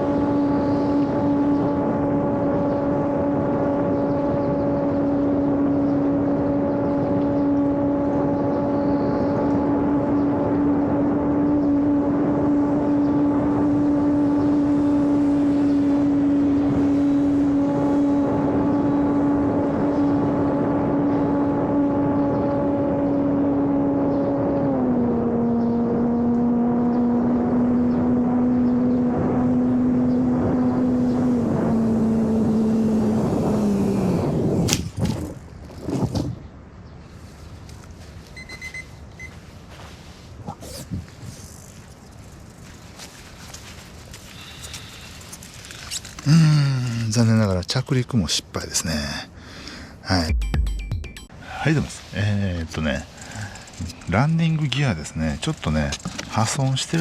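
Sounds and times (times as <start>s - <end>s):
model airplane motor humming: 0.0s - 35.3s, 52.5s - 57.0s.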